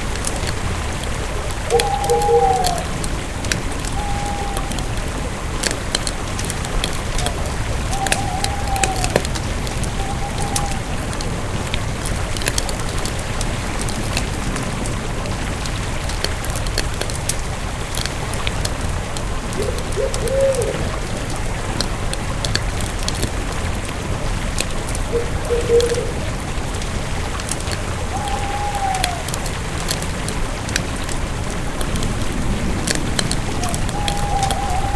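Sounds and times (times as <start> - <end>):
campfire crackling and popping: 0.0 - 34.9
bird calling: 0.2 - 12.8, 19.1 - 23.6, 24.7 - 34.9.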